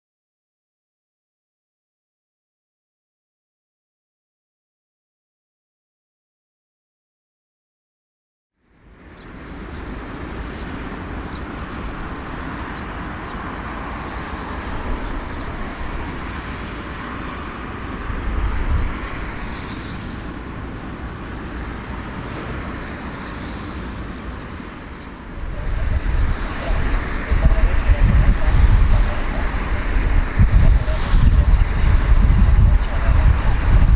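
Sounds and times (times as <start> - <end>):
vehicle roar with deep rumble: 8.6 - 33.9.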